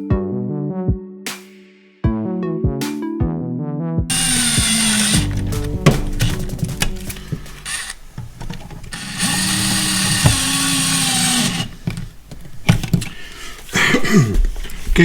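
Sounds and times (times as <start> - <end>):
electric screwdriver motor whine: 4.1 - 12.2
handling clicks and knocks: 5.1 - 13.8.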